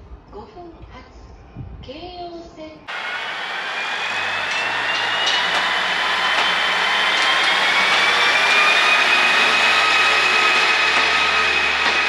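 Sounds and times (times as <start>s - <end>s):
traction motor whine rising: 2.9s - 12.0s
train running noise: 2.9s - 12.0s.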